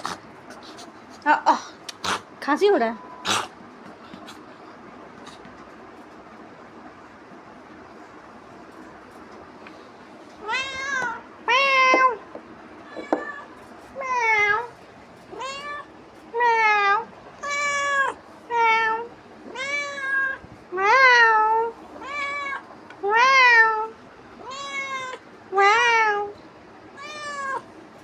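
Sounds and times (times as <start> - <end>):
cat meowing: 10.4 - 12.2, 12.8 - 26.4, 27.0 - 27.7.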